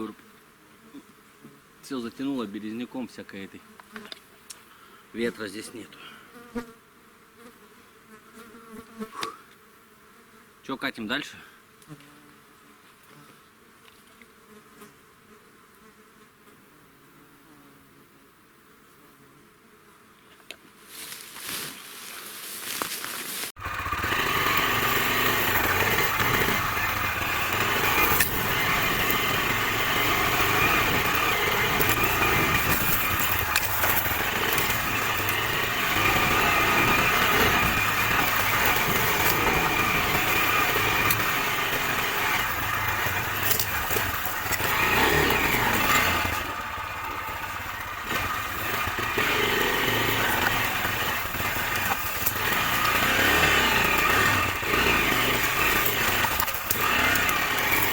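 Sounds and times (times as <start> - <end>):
motorcycle engine running: 22.4 - 57.9.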